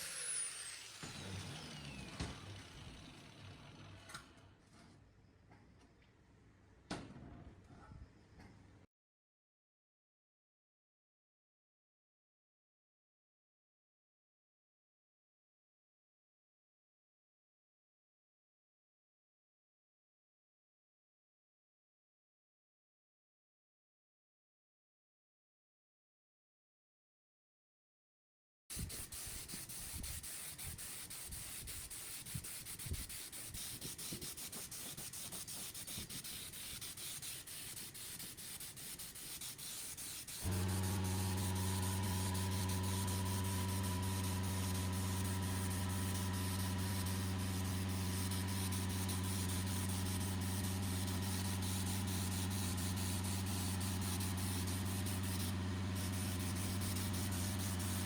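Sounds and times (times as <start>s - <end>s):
electric motor humming: 0.0s - 4.1s, 40.4s - 58.0s
sanding hiss with low knocks: 28.7s - 58.0s.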